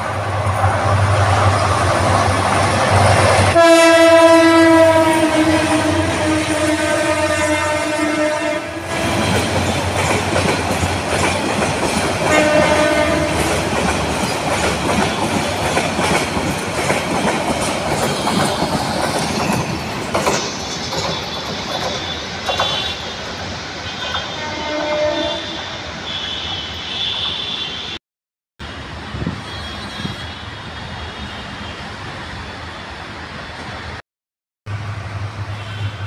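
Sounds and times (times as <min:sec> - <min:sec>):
train horn: 0:03.5 - 0:09.5, 0:12.2 - 0:13.7, 0:22.5 - 0:23.1, 0:23.9 - 0:27.9, 0:29.4 - 0:30.6
train wheels clattering over rail joints: 0:09.0 - 0:23.0.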